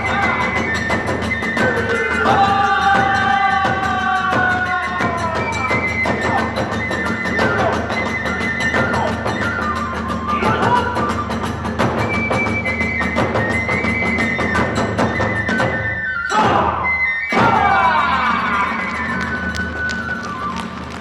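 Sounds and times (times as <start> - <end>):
fast drum beats: 0.0 - 15.7
bamboo flute melody: 0.0 - 21.0.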